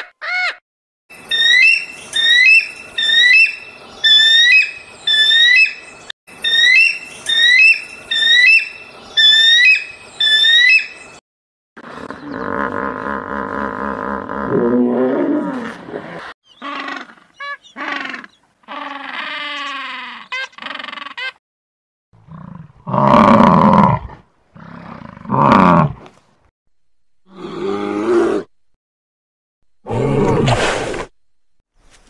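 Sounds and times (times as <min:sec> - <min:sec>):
animal roars: 0:11.8 - 0:17.2, 0:22.2 - 0:26.1, 0:27.3 - 0:28.5
hippopotamus calling: 0:16.5 - 0:21.3.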